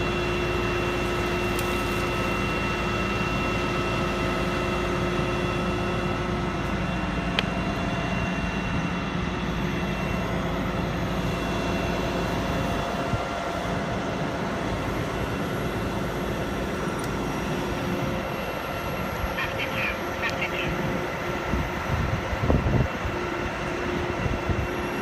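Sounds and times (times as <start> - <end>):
heavy machinery engine droning: 0.0 - 25.0.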